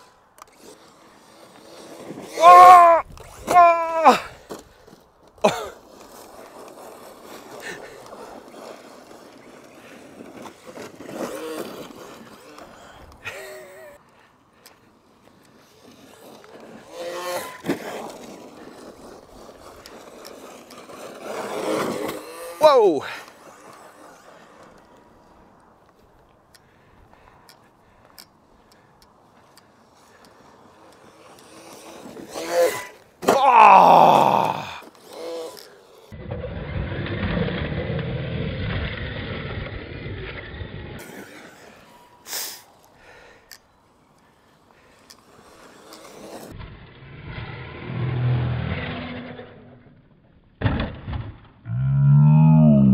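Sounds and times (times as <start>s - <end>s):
toy truck running on dirt: 0.0s - 52.9s
rc truck motor rumble: 30.2s - 33.2s, 34.5s - 42.3s, 44.6s - 50.5s.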